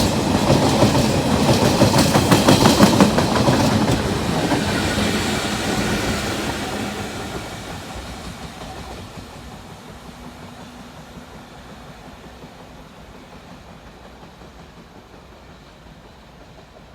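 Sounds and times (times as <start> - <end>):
freight train rolling on track: 0.0 - 16.9.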